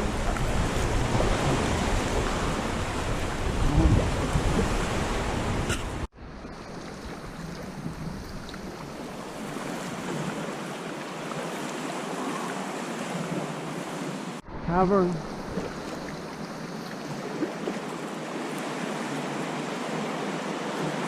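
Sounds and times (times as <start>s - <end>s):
wind buffeting microphone: 0.0s - 10.4s
sea waves washing: 0.0s - 21.0s.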